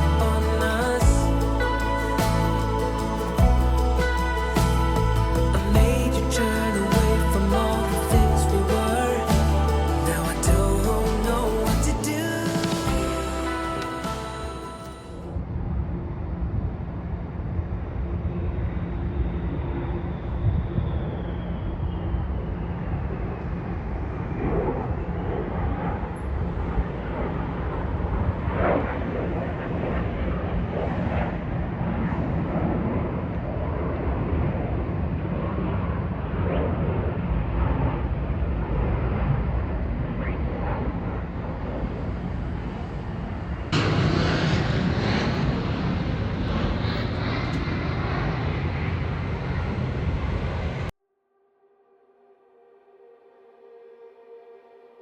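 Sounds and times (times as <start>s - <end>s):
jet high whine: 0.0s - 51.0s
jet low rumble: 0.0s - 51.0s
jet rush: 21.1s - 50.9s.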